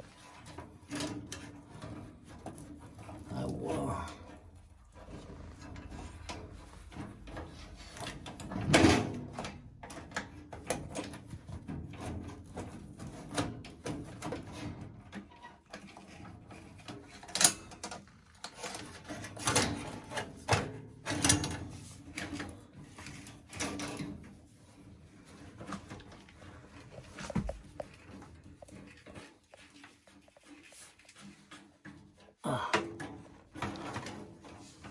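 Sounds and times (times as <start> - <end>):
hands knocking and scraping metal: 26.8 - 29.3.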